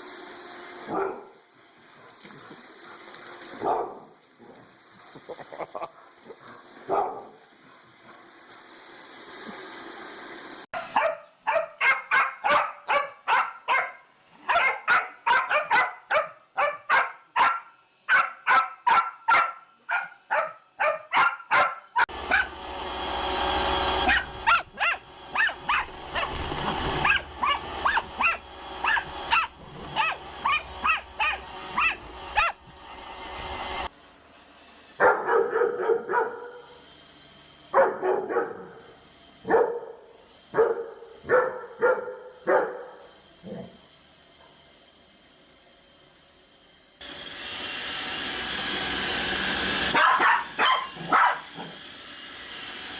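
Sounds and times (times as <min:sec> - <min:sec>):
dog barking: 0:00.9 - 0:01.4, 0:03.6 - 0:04.6, 0:05.9 - 0:07.9, 0:10.8 - 0:22.5, 0:24.0 - 0:26.3, 0:27.0 - 0:32.6, 0:35.0 - 0:36.7, 0:37.8 - 0:38.8, 0:39.5 - 0:40.0, 0:40.6 - 0:43.0, 0:49.9 - 0:51.8.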